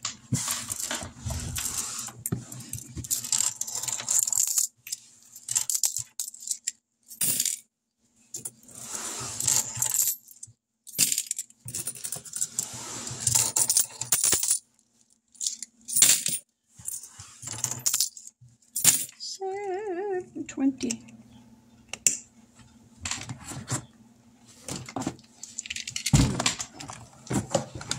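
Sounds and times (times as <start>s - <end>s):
coins clinking into a jar: 2.7s - 7.6s, 9.4s - 12.6s, 13.2s - 14.6s, 15.4s - 19.2s.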